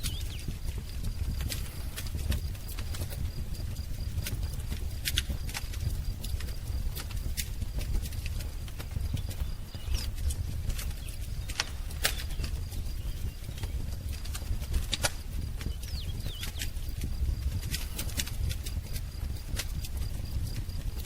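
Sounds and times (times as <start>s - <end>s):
faint bird chirp: 0.0s - 0.6s, 8.9s - 17.0s
low rumble of flames: 0.0s - 21.0s
wood fire crackling and popping: 0.0s - 21.0s.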